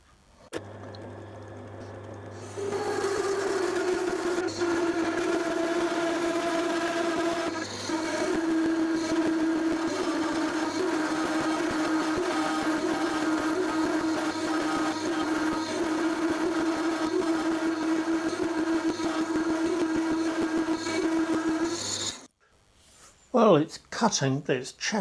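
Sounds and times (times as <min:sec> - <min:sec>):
lathe tool chattering: 0:02.4 - 0:22.2.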